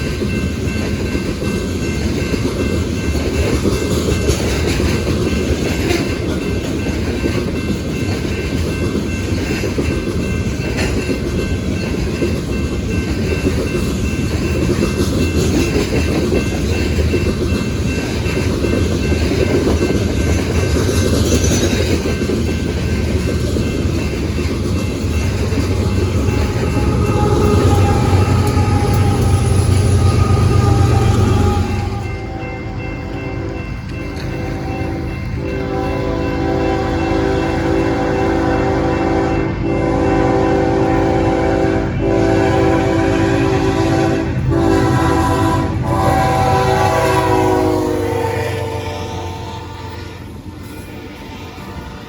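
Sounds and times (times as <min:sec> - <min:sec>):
freight train rumbling past: 0:00.0 - 0:52.0
thin steel wheel tones: 0:25.2 - 0:32.9.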